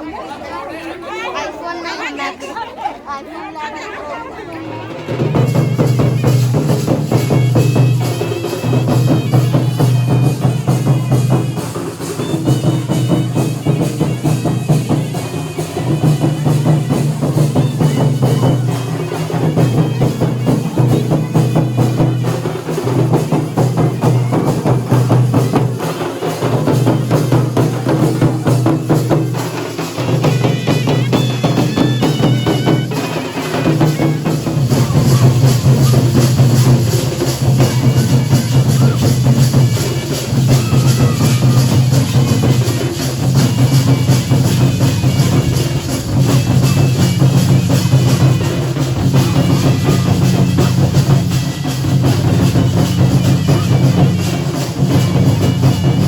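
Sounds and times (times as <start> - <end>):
drums in fast rhythm: 4.5 - 56.0.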